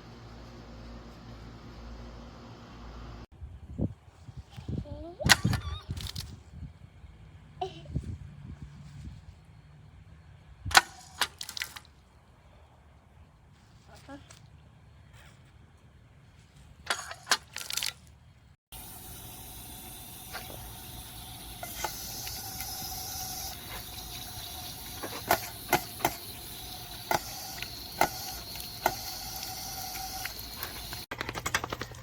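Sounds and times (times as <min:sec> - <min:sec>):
water fountain spraying: 0:18.7 - 0:31.1.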